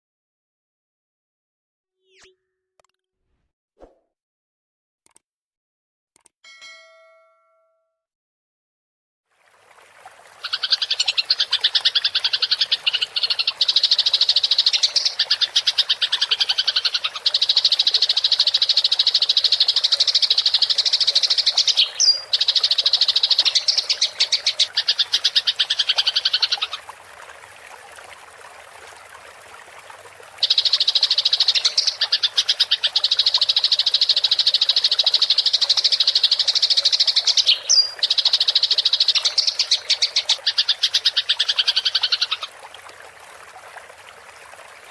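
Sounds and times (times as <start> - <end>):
running water trickling: 9.3 - 44.9.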